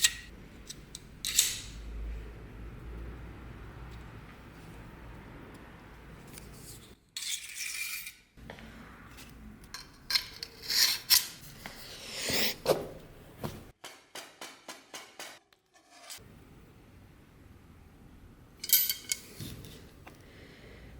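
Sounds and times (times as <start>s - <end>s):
scraping metal parts: 9.7s - 11.6s, 18.6s - 19.7s.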